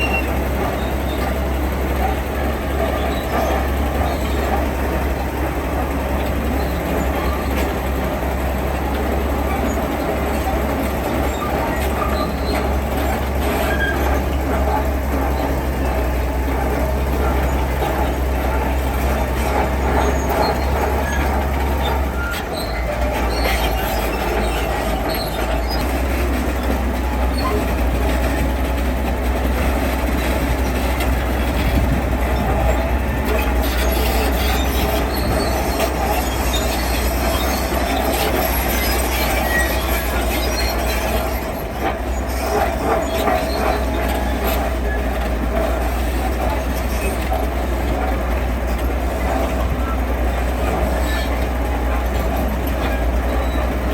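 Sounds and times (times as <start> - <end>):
heavy diesel machinery running: 0.0 - 53.9.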